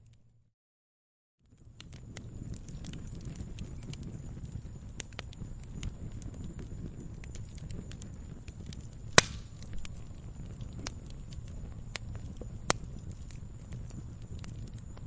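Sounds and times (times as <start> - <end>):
firewood burning: 1.4 - 15.0
loud wood pops: 9.2 - 9.6.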